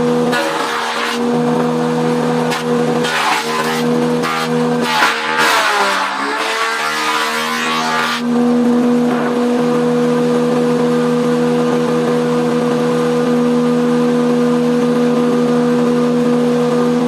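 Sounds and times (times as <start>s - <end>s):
bandsaw humming: 0.0s - 8.4s.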